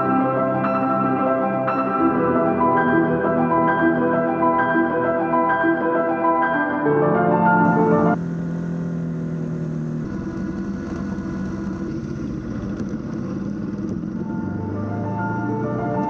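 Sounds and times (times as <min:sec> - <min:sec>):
background music: 0:00.0 - 0:08.2, 0:14.1 - 0:16.0
motorcycle engine running: 0:07.6 - 0:16.0.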